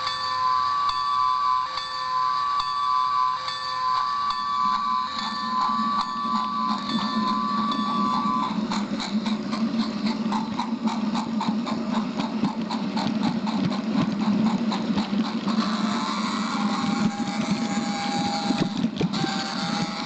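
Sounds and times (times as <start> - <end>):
regular clicking of train: 0.0 - 20.0
small train humming on track: 0.0 - 20.0
whistle-like tone: 0.2 - 8.6.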